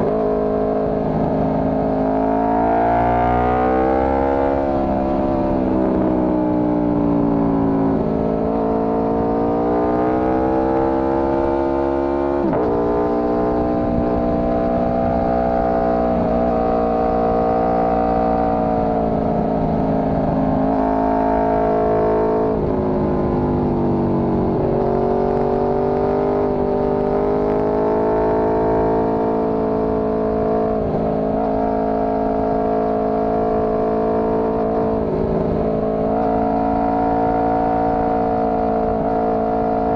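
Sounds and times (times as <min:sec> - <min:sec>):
motorcycle engine revving: 0:00.0 - 0:39.9
wind rumble: 0:12.4 - 0:27.3, 0:28.9 - 0:39.9.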